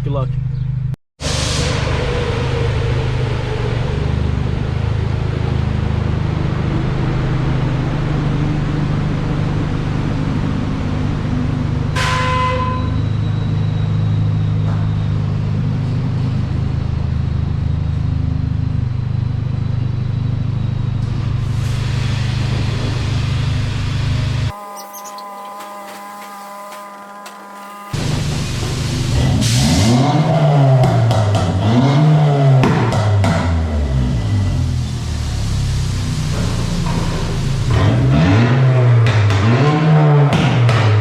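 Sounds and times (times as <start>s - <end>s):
car wash machinery rumble: 1.2s - 12.1s, 12.8s - 41.0s
water spray hissing: 24.5s - 29.8s.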